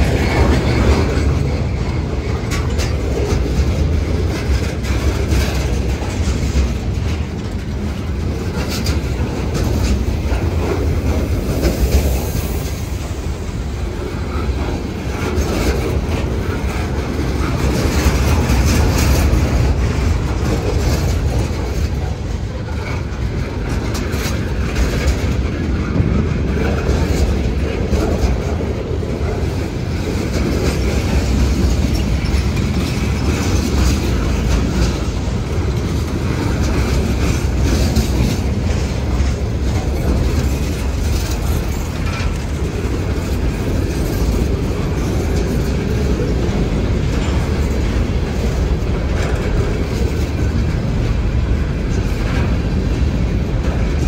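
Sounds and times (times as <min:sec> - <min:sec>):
freight train wheels rumbling on rail: 0:00.0 - 0:54.0
wheels clanking over rail joints: 0:00.0 - 0:54.0.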